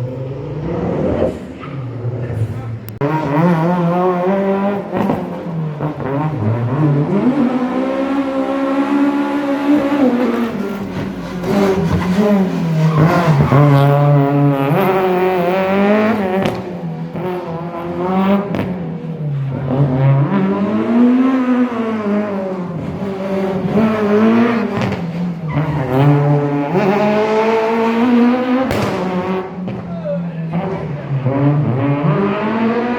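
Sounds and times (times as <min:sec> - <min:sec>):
rally car engine revving: 0:00.0 - 0:32.9.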